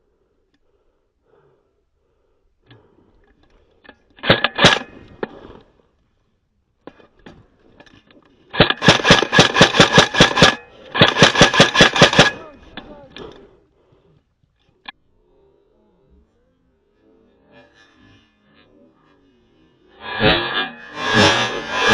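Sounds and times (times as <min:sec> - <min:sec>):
airsoft gun shots: 0:04.2 - 0:05.0, 0:08.6 - 0:12.5
rapid string of gunshots: 0:04.2 - 0:05.1, 0:08.5 - 0:12.6.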